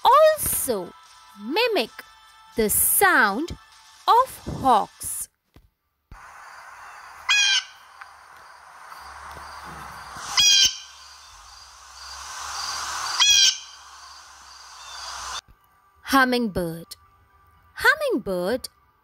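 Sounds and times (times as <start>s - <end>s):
steady outdoor hiss: 0.0s - 5.2s, 6.1s - 16.8s
blue jay harsh calls: 6.4s - 15.4s
faint high chirps: 6.4s - 15.4s.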